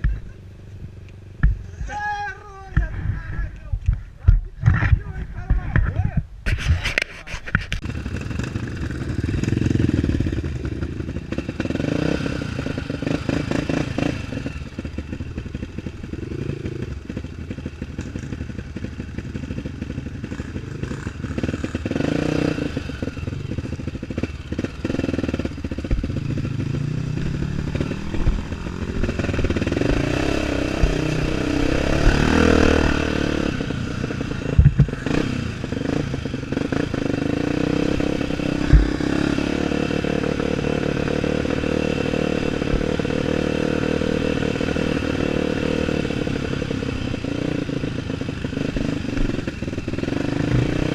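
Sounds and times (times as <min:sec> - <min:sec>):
motorcycle engine revving: 0:07.6 - 0:50.9
clattering and sharp knocks: 0:34.5 - 0:35.0.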